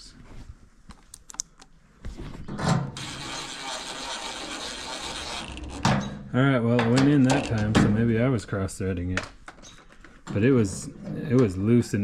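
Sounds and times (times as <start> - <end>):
cordless drill driving a screw: 3.0 - 5.9.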